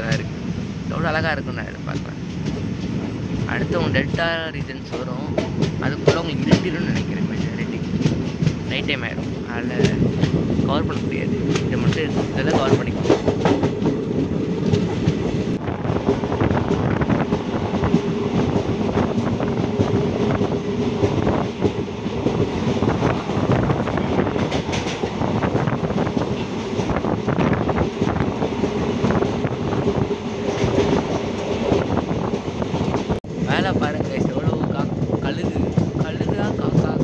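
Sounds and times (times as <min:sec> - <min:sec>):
train wheels rumbling on track: 0:00.0 - 0:37.0
irregular clatter: 0:04.0 - 0:33.2.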